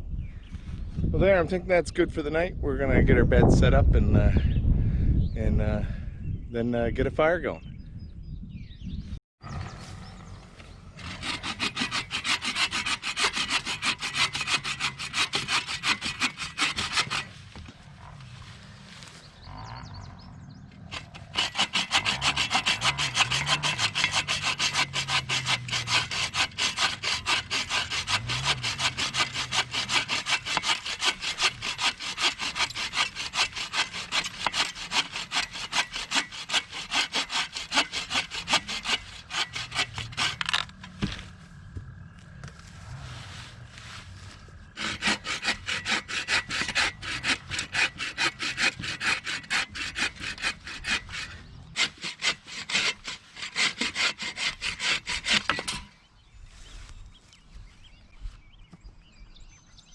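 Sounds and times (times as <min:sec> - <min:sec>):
hand saw cutting wood: 0:11.0 - 0:17.7, 0:20.9 - 0:41.2, 0:44.8 - 0:55.9.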